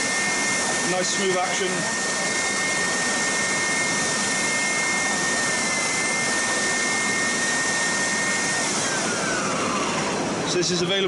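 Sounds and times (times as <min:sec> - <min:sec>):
spindle sander motor whining: 0:00.0 - 0:11.0.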